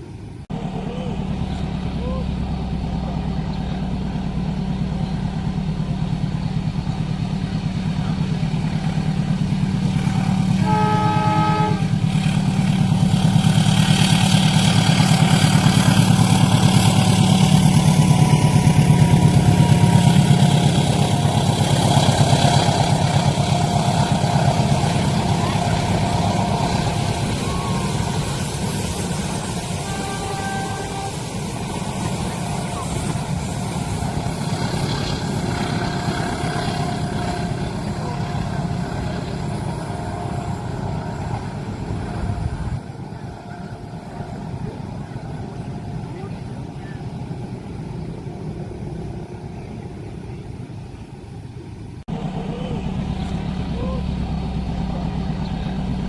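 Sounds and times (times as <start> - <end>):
train rumbling past: 0.0 - 56.0
train horn: 10.0 - 13.0, 18.7 - 46.1.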